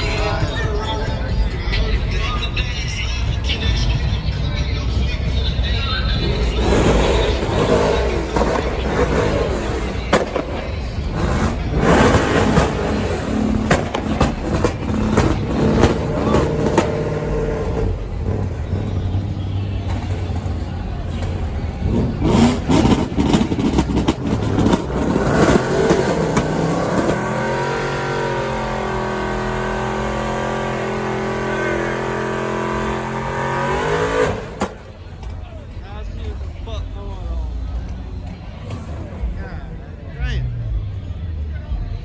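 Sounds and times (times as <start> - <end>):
car engine revving with crackles: 5.2 - 35.8.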